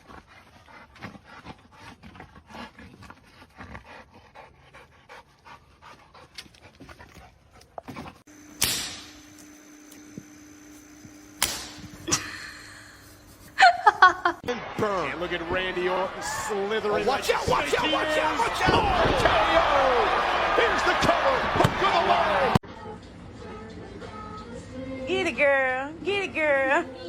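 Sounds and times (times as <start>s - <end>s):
dog panting: 0.0s - 8.3s
electrical hum: 8.2s - 22.6s.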